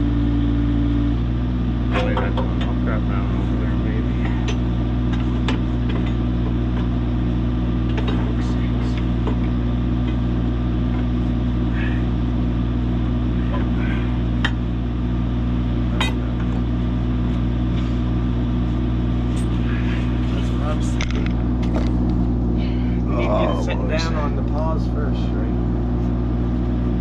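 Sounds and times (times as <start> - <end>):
engine idling: 0.0 - 27.0
sharp metal clanks: 15.9 - 16.6.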